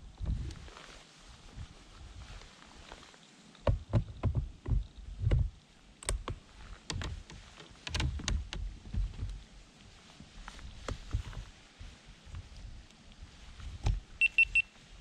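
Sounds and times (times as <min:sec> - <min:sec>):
gear knocking and thumping: 0:03.7 - 0:09.4.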